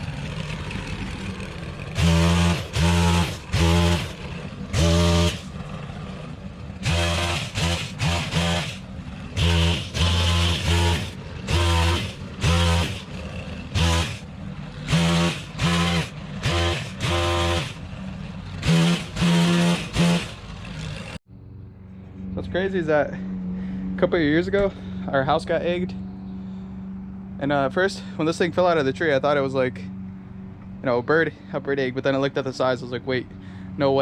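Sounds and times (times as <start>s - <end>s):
pole pruner engine revving: 0.0s - 21.2s.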